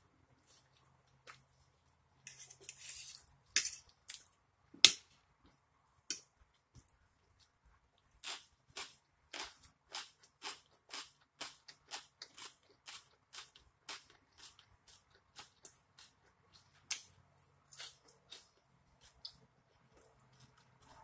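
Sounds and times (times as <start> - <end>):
person chewing food: 8.0 - 21.0.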